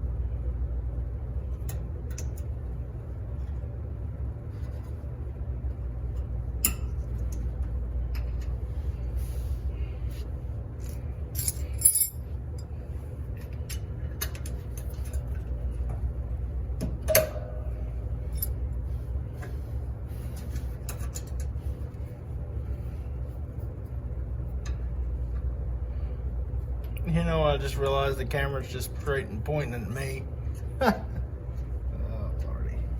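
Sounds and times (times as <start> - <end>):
low machine hum: 0.0 - 32.9.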